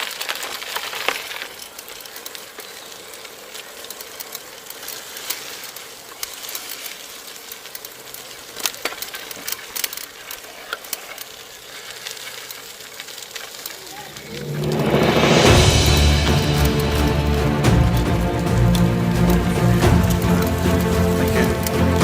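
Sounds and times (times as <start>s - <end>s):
bike clicks and rattles: 0.0s - 14.1s
bicycle tyres hissing: 0.0s - 22.0s.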